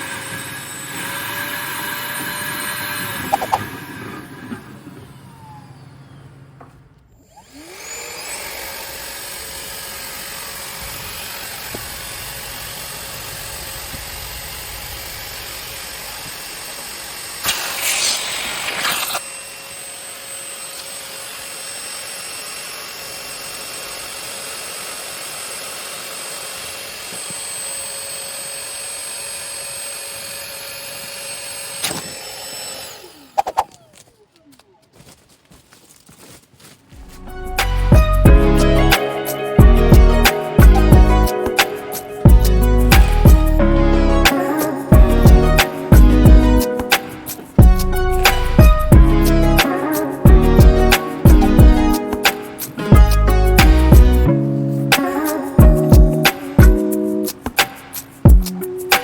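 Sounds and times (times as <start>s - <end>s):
vacuum motor whining: 0.0s - 34.5s
rushing burst of suction: 17.4s - 19.2s.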